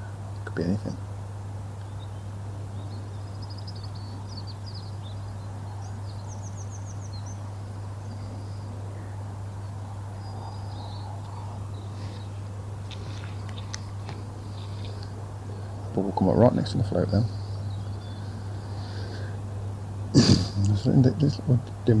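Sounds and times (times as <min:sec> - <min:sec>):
small birds chirping: 0:00.0 - 0:22.0
steady low hum: 0:00.0 - 0:22.0
bird trill: 0:01.8 - 0:09.2, 0:10.1 - 0:12.4.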